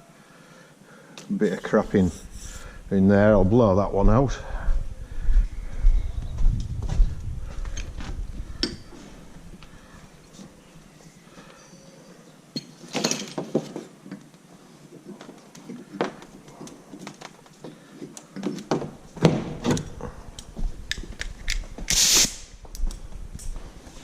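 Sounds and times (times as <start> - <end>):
compressed air burst from blow gun: 21.9 - 22.6.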